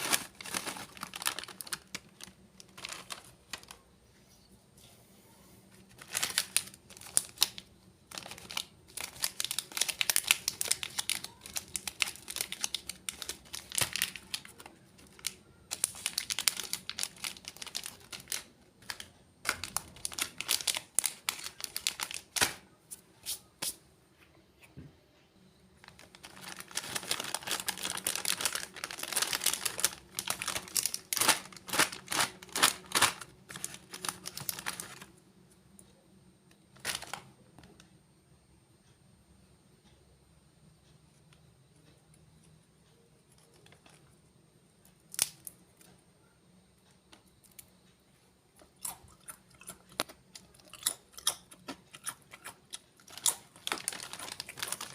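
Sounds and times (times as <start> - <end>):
crunchy snacks crackling: 0.0 - 3.9, 5.8 - 22.6, 25.8 - 35.2, 36.7 - 37.4, 44.9 - 45.9, 48.6 - 54.9
plastic packets crinkling: 0.0 - 3.9, 5.8 - 22.6, 25.8 - 35.2, 36.8 - 37.3, 49.6 - 54.9.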